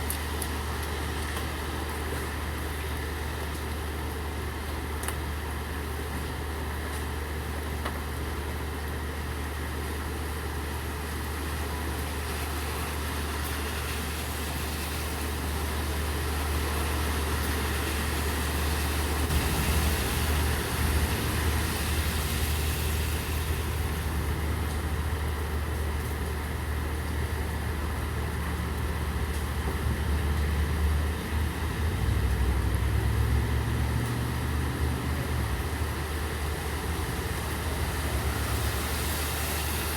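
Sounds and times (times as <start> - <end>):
steady rain: 0.0 - 39.9
vehicle engine idling: 18.9 - 28.6
loud hiss: 19.3 - 23.9.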